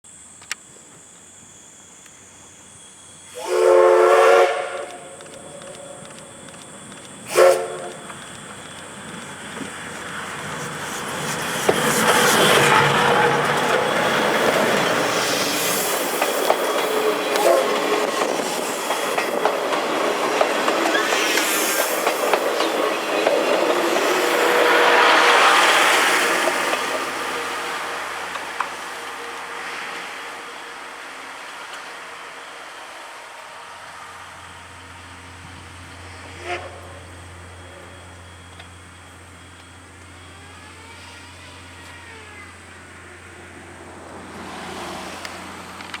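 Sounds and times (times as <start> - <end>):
train rolling past: 0.2 - 46.0
wheels clicking over rail joints: 4.5 - 28.9, 38.5 - 46.0
faint squeals: 36.0 - 43.8.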